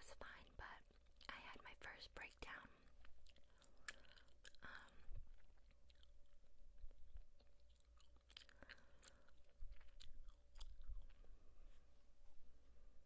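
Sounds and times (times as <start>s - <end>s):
gum chewing: 0.7s - 1.4s, 2.8s - 11.4s.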